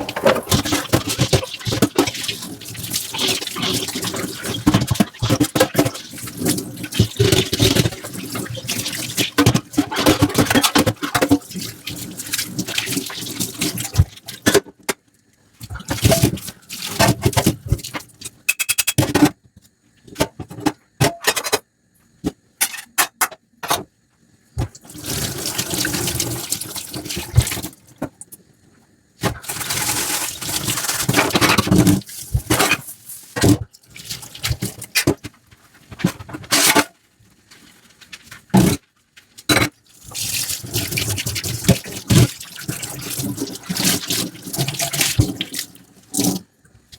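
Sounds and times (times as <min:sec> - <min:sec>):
running water: 0:00.0 - 0:10.4, 0:11.2 - 0:14.5, 0:24.8 - 0:28.0, 0:40.0 - 0:46.5
dishes clicking and knocking: 0:18.4 - 0:19.4, 0:20.2 - 0:21.6, 0:22.6 - 0:23.8, 0:39.4 - 0:39.8.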